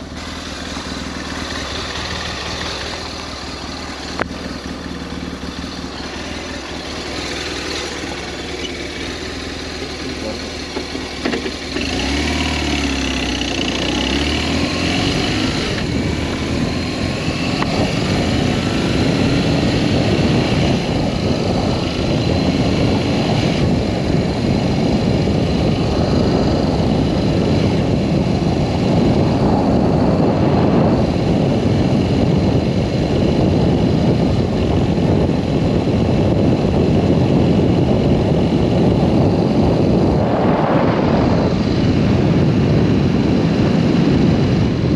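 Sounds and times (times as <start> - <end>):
motorcycle engine running: 0.0 - 44.9
wind rush over microphone: 11.1 - 44.9.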